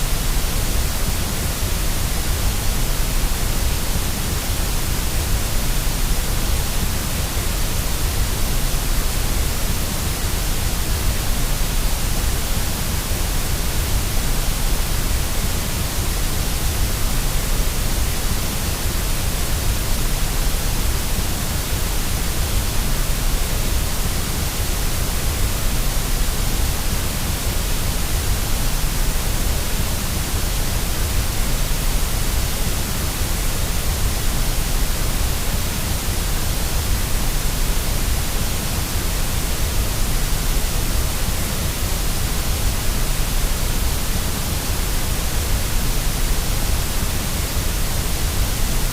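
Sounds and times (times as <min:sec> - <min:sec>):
white noise hiss: 0:00.0 - 0:48.9.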